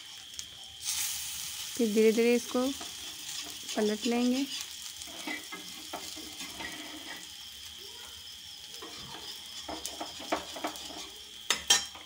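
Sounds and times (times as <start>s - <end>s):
food sizzling in oil: 0.0s - 12.0s
metal spatula scraping a pan: 2.5s - 7.4s, 8.8s - 12.0s.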